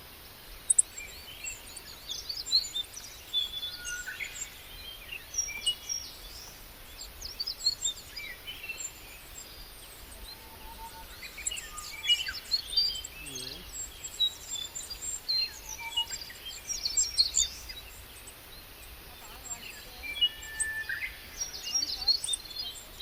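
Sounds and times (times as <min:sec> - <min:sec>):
outdoor background hiss: 0:00.0 - 0:23.0
small birds chirping: 0:00.0 - 0:23.0
faint low bird call: 0:09.0 - 0:13.9.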